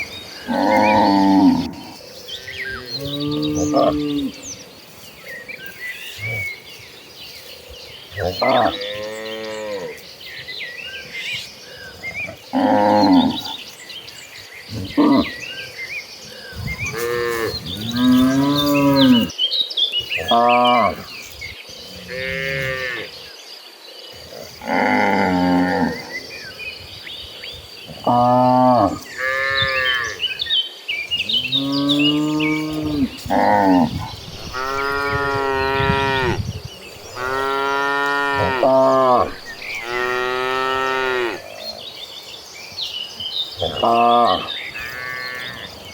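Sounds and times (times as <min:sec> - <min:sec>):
small birds chirping: 0:00.0 - 0:45.9
cow mooing: 0:00.5 - 0:04.4, 0:31.5 - 0:41.5.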